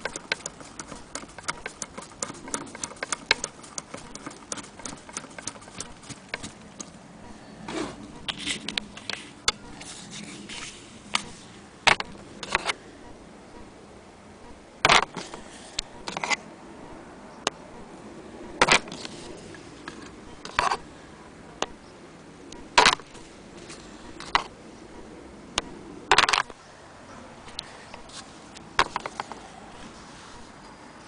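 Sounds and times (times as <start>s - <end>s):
sewing machine parts clicking: 0.0s - 7.0s.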